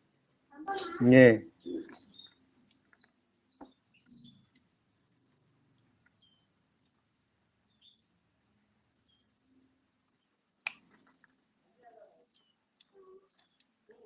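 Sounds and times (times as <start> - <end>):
bird chirping: 0.7 - 14.0
soft clicks: 12.3 - 13.8.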